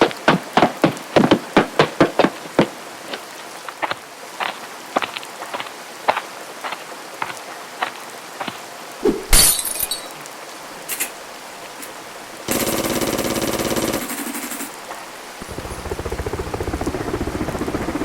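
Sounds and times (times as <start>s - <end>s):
rapid hammering: 0.0s - 2.4s, 11.8s - 14.8s
rain hissing: 0.0s - 18.0s.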